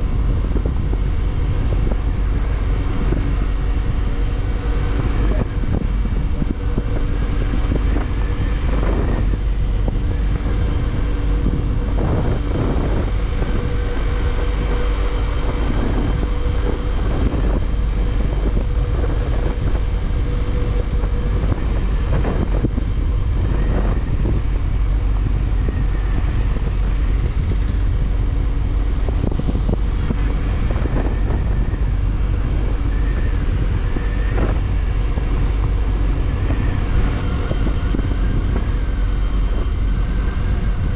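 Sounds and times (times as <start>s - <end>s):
motorcycle engine cruising: 0.0s - 40.9s
passing traffic: 0.0s - 40.9s
wind rumble on microphone: 0.0s - 40.9s.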